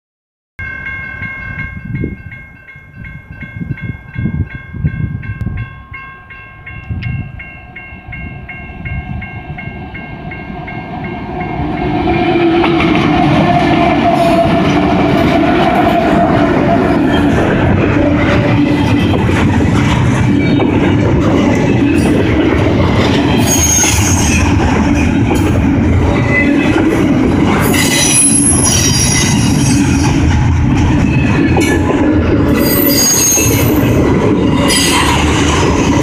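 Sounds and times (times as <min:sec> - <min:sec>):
railroad crossing bell ringing: 0:00.6 - 0:12.1, 0:23.2 - 0:30.2, 0:32.4 - 0:34.9
locomotive passing rumble: 0:06.6 - 0:36.0.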